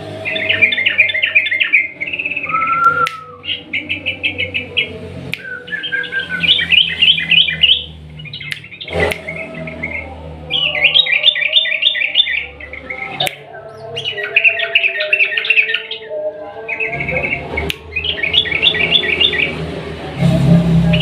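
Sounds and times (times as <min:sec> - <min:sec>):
bird singing rapid song: 0:00.0 - 0:19.7
sharp clicks: 0:08.4 - 0:09.3, 0:13.2 - 0:13.5.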